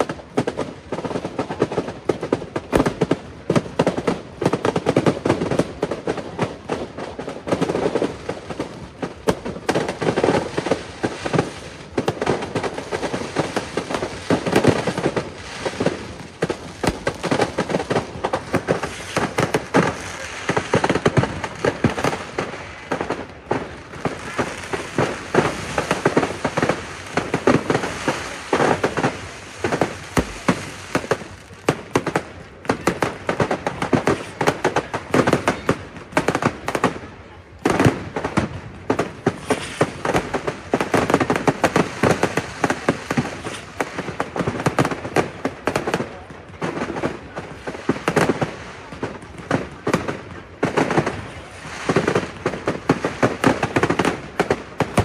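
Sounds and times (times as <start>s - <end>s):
fireworks banging and crackling: 0.0s - 55.0s.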